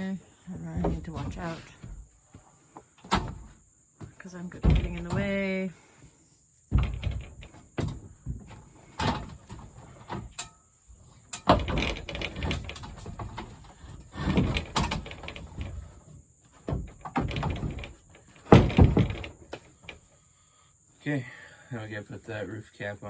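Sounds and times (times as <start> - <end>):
plastic parts knocking and rattling: 4.5 - 5.5, 6.7 - 10.5, 11.3 - 20.0.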